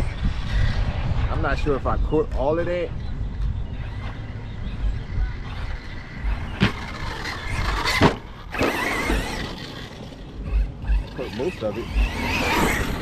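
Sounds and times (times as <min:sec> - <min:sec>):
wind rumble on microphone: 0:00.0 - 0:13.0
electric motor whining: 0:03.0 - 0:13.0.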